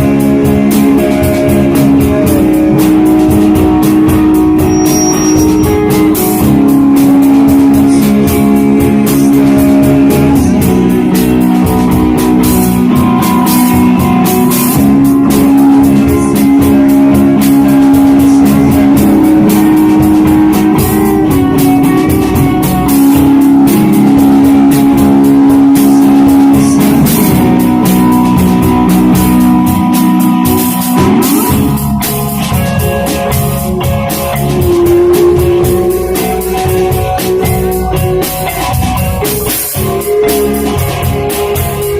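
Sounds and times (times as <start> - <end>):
drum kit with cymbal hits: 0.0 - 41.9
electric guitar chords: 0.0 - 41.9.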